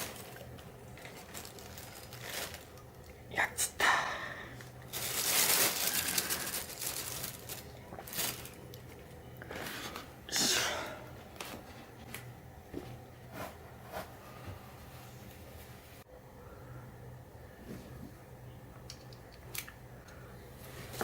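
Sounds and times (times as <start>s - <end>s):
rustling and crinkling: 0.0s - 3.2s, 4.8s - 10.1s, 11.2s - 16.0s, 20.6s - 21.0s
faint steady hum: 0.0s - 21.0s.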